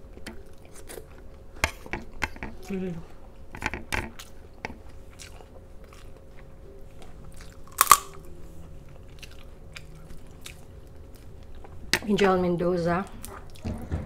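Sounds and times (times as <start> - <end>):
wet chewing and biting: 7.3 - 11.7
crisp crunches: 7.7 - 8.2.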